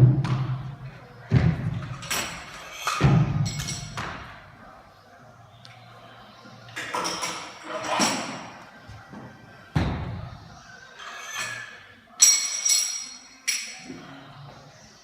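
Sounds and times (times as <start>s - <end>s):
gym equipment thuds and knocks: 3.0s - 4.3s.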